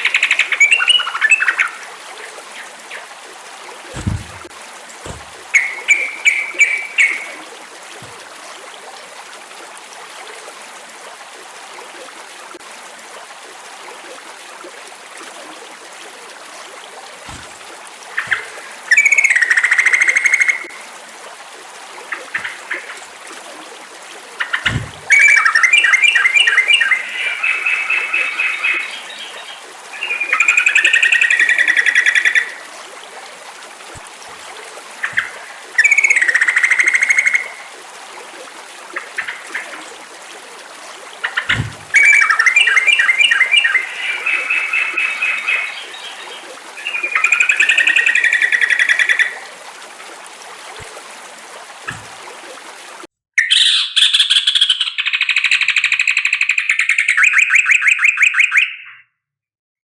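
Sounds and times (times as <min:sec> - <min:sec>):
bulbul song: 0:03.9 - 0:07.4, 0:18.2 - 0:20.8, 0:24.4 - 0:32.6, 0:35.0 - 0:37.7, 0:41.2 - 0:49.4.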